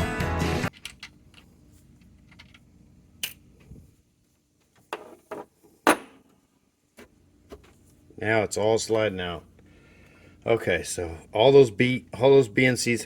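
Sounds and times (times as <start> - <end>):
background music: 0.0 - 0.7.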